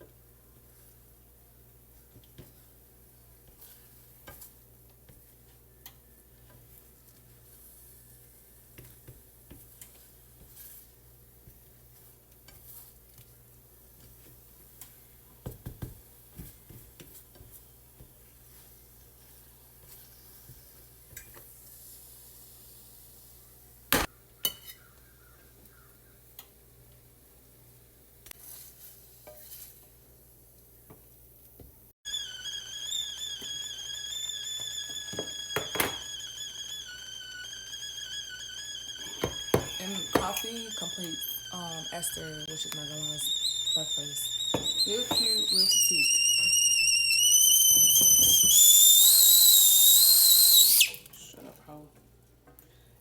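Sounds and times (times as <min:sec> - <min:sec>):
bacon sizzling: 0:32.1 - 0:51.1.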